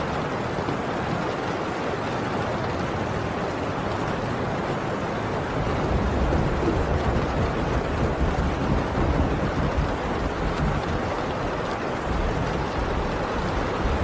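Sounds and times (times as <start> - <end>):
heavy rain on a tin roof: 0.0 - 14.0
distant thunder rumble: 5.5 - 14.0.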